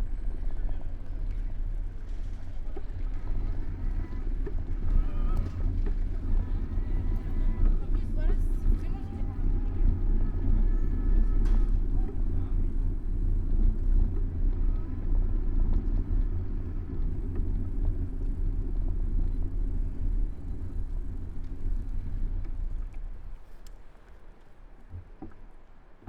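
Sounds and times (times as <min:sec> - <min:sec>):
wind and road noise while cycling: 0:00.0 - 0:26.0.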